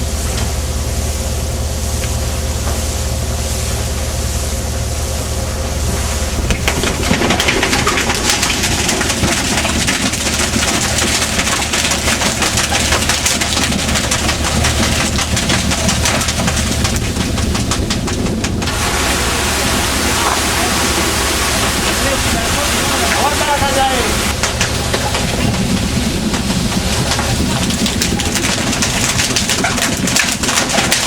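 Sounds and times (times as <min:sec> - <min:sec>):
boat engine running: 0:00.0 - 0:31.0
rushing water: 0:06.1 - 0:31.0
wind noise: 0:06.3 - 0:12.4
fast rattling: 0:06.4 - 0:19.8, 0:20.4 - 0:31.0.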